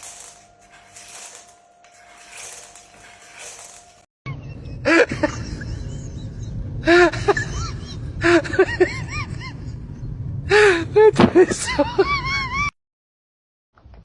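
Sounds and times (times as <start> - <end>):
low rumbling background: 4.3 - 11.8.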